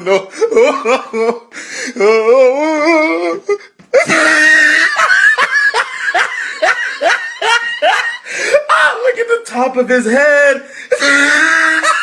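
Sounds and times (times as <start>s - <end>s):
hearty laughter: 4.0s - 8.6s.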